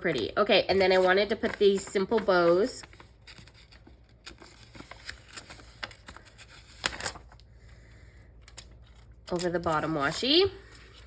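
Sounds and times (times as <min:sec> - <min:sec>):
paper crackle: 0:00.1 - 0:07.5.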